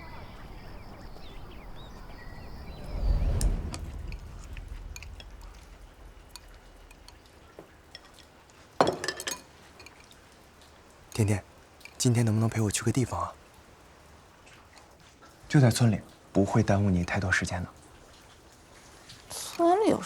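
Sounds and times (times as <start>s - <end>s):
low rumble: 1.0s - 7.6s
clinks of dishes or cutlery: 7.9s - 10.2s.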